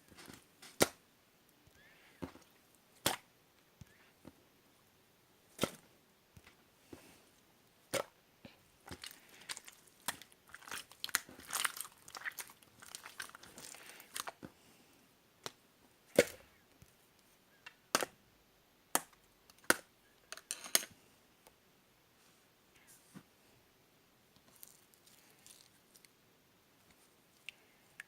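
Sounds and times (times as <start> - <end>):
slime squished by hand: 8.9 - 14.4.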